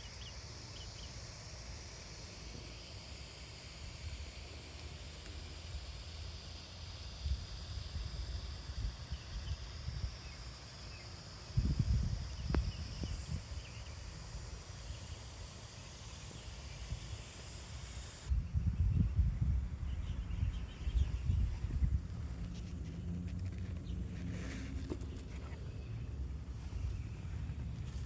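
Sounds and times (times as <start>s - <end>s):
faint bird chirps: 0.0s - 1.2s, 18.3s - 21.8s
steady high hiss: 0.0s - 28.0s
gusty wind on microphone: 11.6s - 13.7s, 18.3s - 22.4s.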